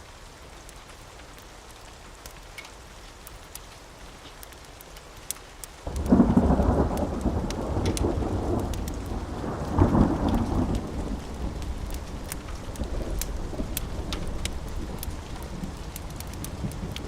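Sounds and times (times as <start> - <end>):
steady rain: 0.0 - 17.0
thunder rolling: 5.9 - 17.0.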